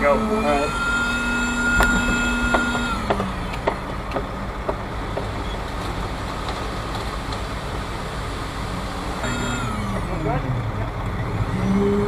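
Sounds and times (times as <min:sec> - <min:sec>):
high whine: 0:00.0 - 0:04.1, 0:07.8 - 0:12.0
diesel engine idling: 0:00.0 - 0:12.0.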